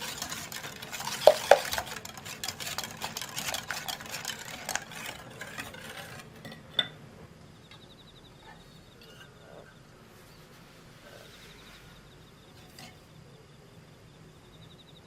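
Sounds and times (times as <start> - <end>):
utensil tapping bowl: 0.0 - 5.2
utensil scraping batter in bowl: 0.0 - 6.7.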